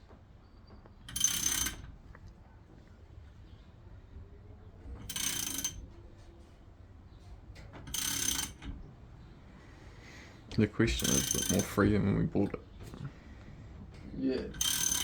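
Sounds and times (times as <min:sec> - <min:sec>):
ratchet wrench clicking: 0:05.1 - 0:05.8, 0:07.9 - 0:08.6, 0:11.0 - 0:11.7, 0:14.6 - 0:15.0.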